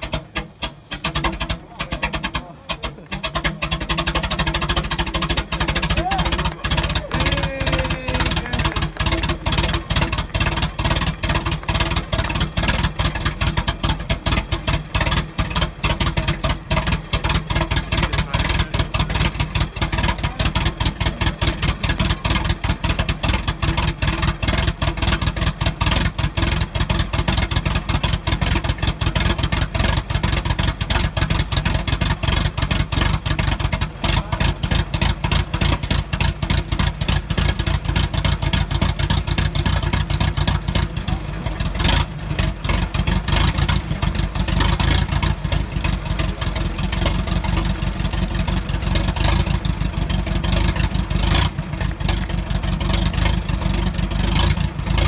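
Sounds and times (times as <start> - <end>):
car engine running: 0.0 - 55.0.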